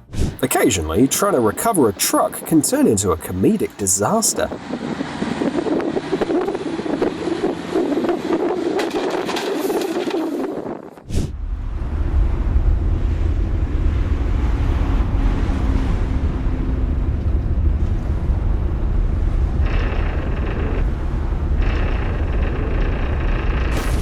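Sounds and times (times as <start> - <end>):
truck engine rumbling: 0.0 - 24.0.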